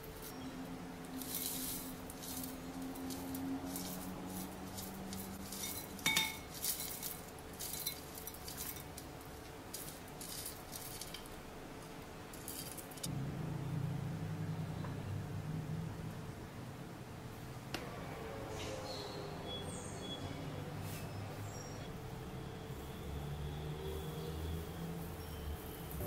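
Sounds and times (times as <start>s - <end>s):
low steady hum: 0.0s - 23.6s
cutlery and dishes clinking: 4.7s - 9.0s
ringing clink: 5.6s - 6.5s.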